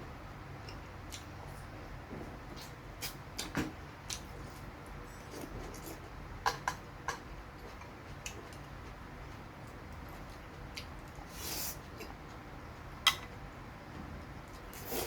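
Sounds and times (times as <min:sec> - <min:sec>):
chewing fried chicken: 0:05.3 - 0:13.6.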